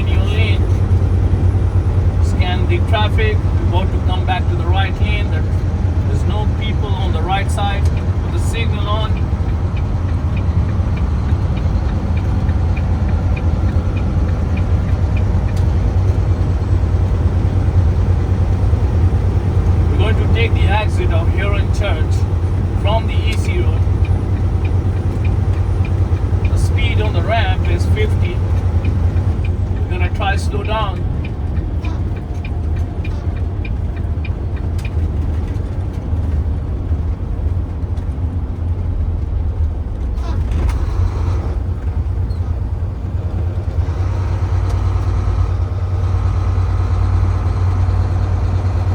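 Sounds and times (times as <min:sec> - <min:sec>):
engine and road drone in truck cab: 0:00.0 - 0:48.9
turn signal ticking: 0:00.0 - 0:48.9.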